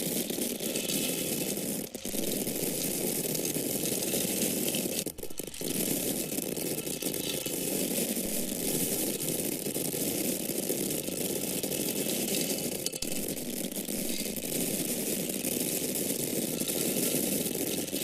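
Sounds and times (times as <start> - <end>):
grains of corn falling: 0.0 - 18.0.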